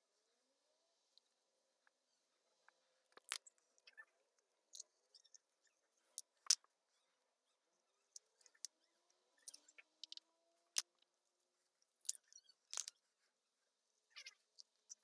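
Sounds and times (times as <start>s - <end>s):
handling noise ticks and crackles: 12.0s - 13.0s.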